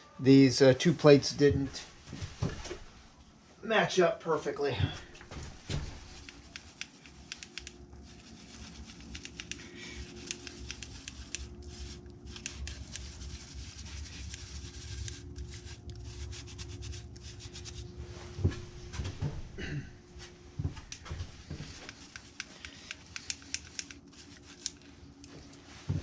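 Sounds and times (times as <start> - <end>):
sand scratching and rubbing: 6.0 - 17.9
small sharp ticks: 6.2 - 7.8, 9.0 - 11.5.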